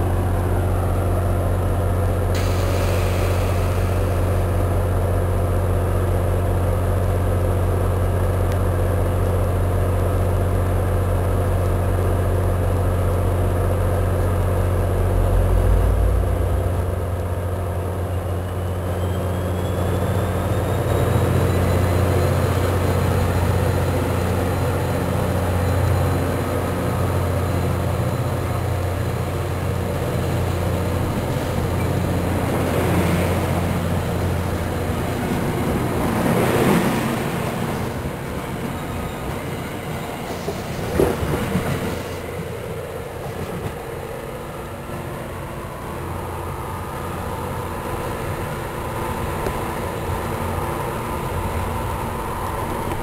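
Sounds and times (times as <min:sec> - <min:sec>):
train rolling past: 0:00.0 - 0:53.0.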